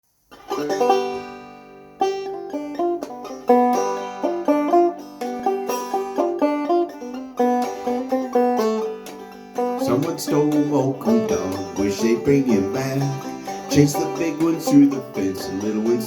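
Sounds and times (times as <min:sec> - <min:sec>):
banjo picked melody: 0:00.3 - 0:16.0.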